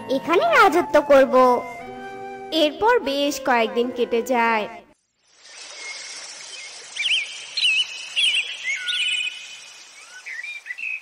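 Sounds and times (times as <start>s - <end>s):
outdoor ambient hiss: 4.9s - 11.0s
birds chirping and trilling: 5.2s - 11.0s.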